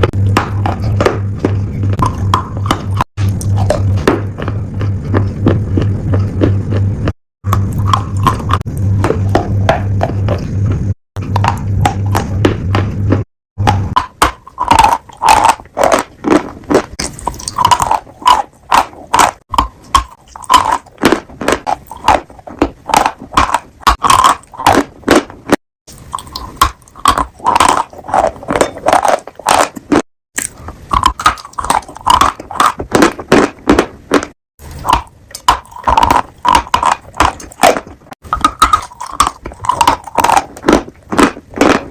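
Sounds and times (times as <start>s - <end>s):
piglet crunching food: 0.0s - 41.9s
steady low hum: 0.0s - 41.9s.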